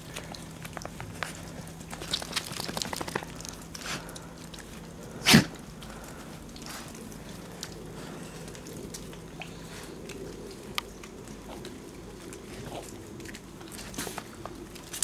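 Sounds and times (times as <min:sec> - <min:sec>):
person sneezing: 0:05.2 - 0:05.5.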